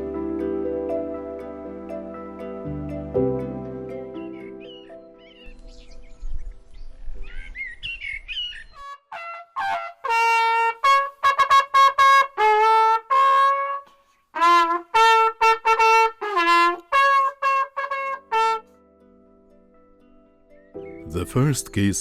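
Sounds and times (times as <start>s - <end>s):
solo trumpet melody: 8.8s - 19.0s.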